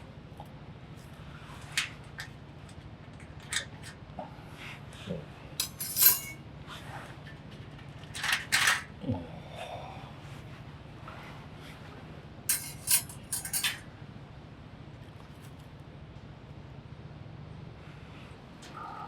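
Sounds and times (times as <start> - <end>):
metal cookware clinking: 5.6 - 6.4, 12.5 - 13.8.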